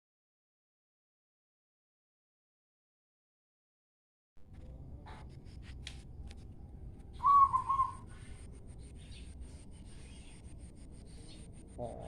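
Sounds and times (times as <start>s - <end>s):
bird whistled call: 7.2s - 8.2s.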